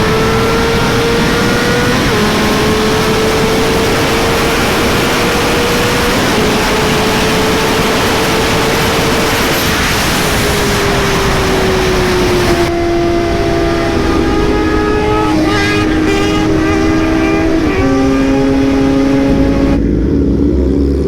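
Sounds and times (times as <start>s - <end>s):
wind rushing on microphone: 0.0s - 20.3s
motorcycle engine high-revving: 0.0s - 21.0s.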